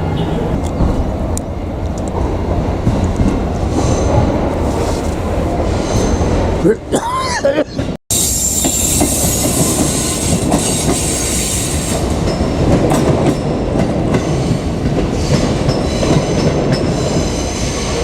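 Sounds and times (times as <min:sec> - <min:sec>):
train rolling rumble: 0:00.0 - 0:18.0
high wheel squeal: 0:08.1 - 0:12.1.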